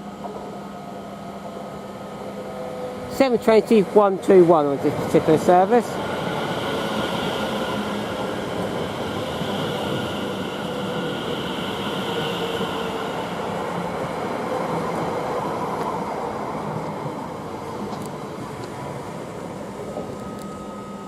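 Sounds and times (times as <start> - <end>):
electric train traction whine: 0.0 - 21.0
wheels on rail: 4.2 - 20.9.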